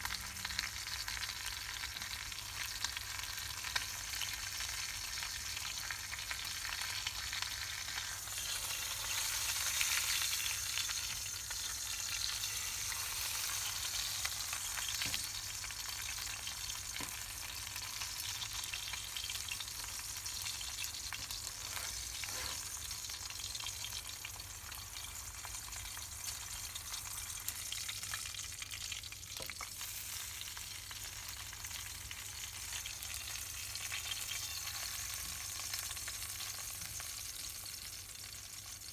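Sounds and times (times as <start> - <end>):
meat sizzling over campfire: 0.0 - 38.9.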